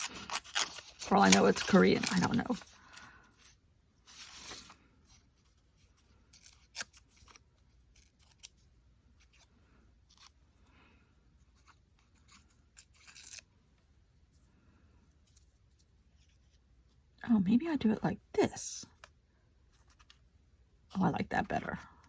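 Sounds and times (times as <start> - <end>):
scissors cutting paper: 0.0 - 2.6, 12.0 - 13.5.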